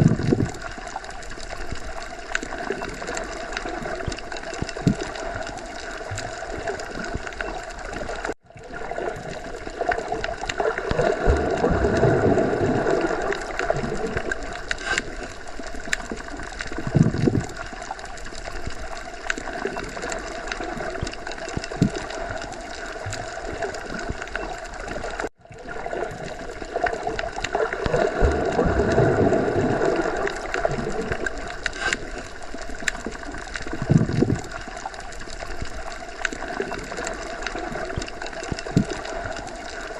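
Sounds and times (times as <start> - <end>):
small underwater clicks: 0.0 - 39.9
underwater water wash: 0.0 - 39.9.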